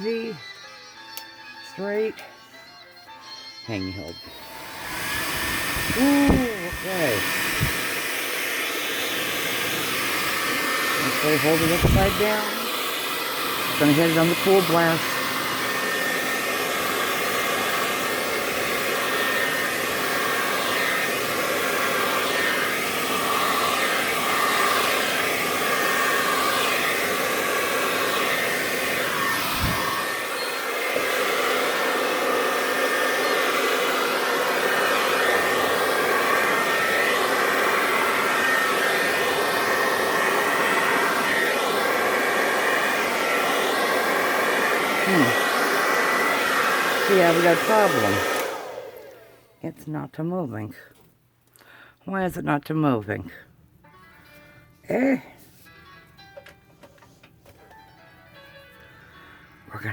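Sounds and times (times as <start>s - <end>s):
blow-dryer running: 0.0s - 0.4s, 3.7s - 50.0s.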